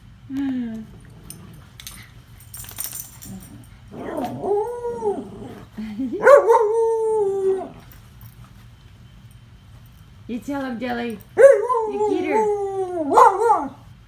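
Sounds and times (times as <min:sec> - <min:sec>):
dog howling: 0:03.3 - 0:07.9, 0:11.4 - 0:13.9.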